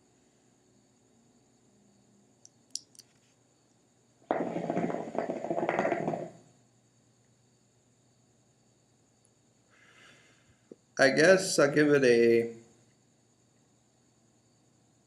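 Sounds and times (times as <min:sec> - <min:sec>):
faint clicks: 0:02.4 - 0:03.3
hookah water bubbling: 0:04.3 - 0:06.4.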